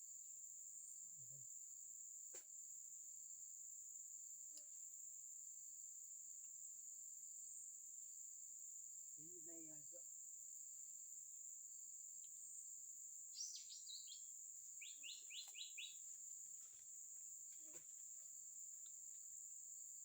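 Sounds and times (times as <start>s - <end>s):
insects droning: 0.0s - 20.0s
songbird chirping: 6.2s - 20.0s.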